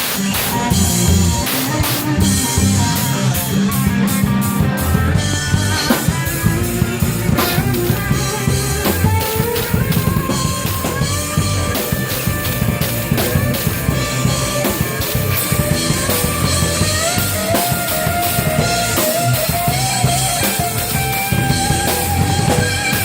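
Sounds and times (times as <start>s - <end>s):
bass guitar: 0.0s - 23.0s
drum kit: 0.0s - 23.0s
electric guitar lead: 0.0s - 23.0s.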